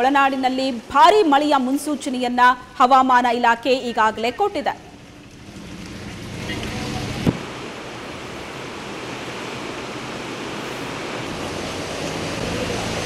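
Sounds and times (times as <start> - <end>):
storm waves breaking on shore: 0.0 - 13.0
wind buffeting microphone: 5.2 - 12.8.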